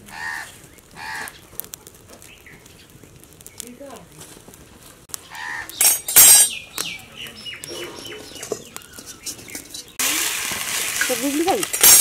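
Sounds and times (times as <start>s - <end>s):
birds calling: 0.1s - 1.6s, 2.2s - 3.7s, 5.1s - 10.0s
harsh bird calls: 5.2s - 10.0s.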